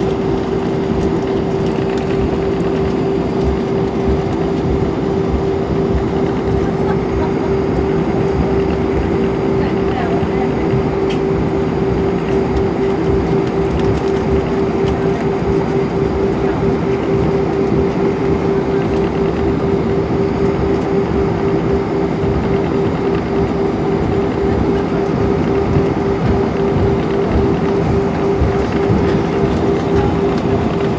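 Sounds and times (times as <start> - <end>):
jet engines steady tone: 0.0 - 30.9.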